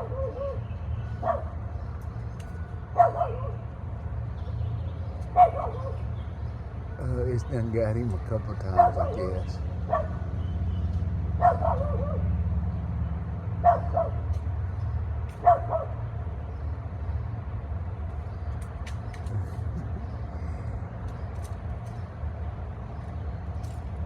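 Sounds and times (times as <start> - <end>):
dog barking: 0.0 - 0.6, 1.2 - 1.6, 2.9 - 3.7, 5.3 - 6.1, 8.6 - 10.3, 11.4 - 12.3, 13.6 - 14.3, 15.3 - 16.0
steady low rumble: 16.7 - 24.0.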